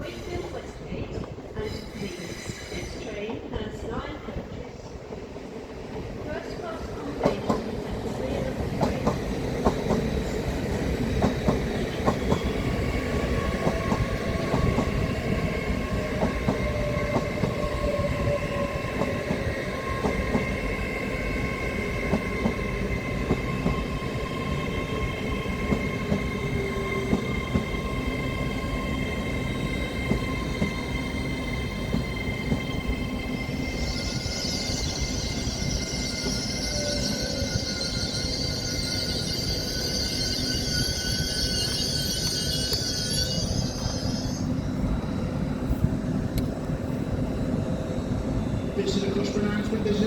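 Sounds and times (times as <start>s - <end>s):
train rumble: 0.0s - 37.9s
high squeal: 33.3s - 44.7s.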